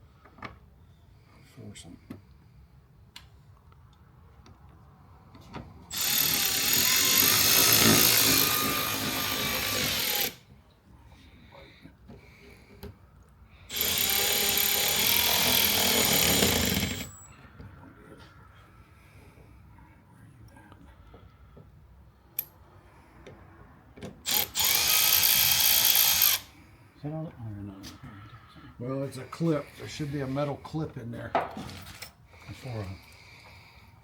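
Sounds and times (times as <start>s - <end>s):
power drill whining: 5.9s - 10.4s, 13.7s - 17.3s, 24.2s - 26.5s.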